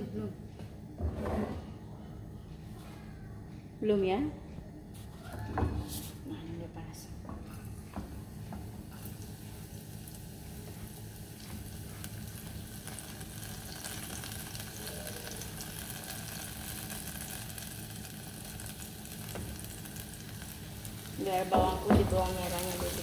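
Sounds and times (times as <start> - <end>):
garlic sizzling in oil: 8.0 - 23.0.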